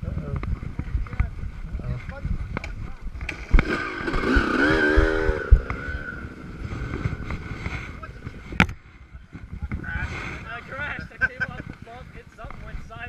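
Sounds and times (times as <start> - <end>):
wind on microphone: 0.0 - 13.0
dirt bike engine running: 2.6 - 8.8.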